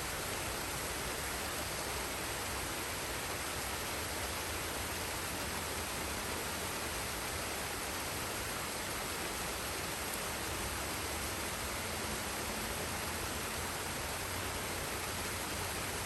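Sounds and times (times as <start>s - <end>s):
waterfall and stream rushing: 0.0s - 16.0s.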